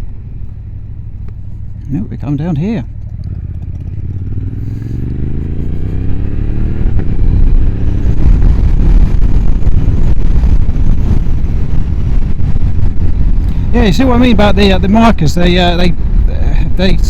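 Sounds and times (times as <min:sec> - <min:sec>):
motorcycle engine accelerating: 0:00.0 - 0:15.3
loud rough low rush: 0:00.0 - 0:17.0.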